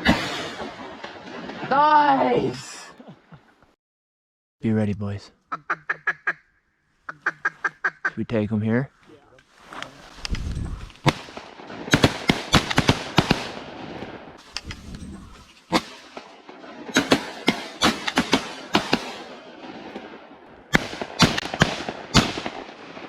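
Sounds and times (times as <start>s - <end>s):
shotguns firing volleys: 0.0s - 1.7s, 10.9s - 23.0s.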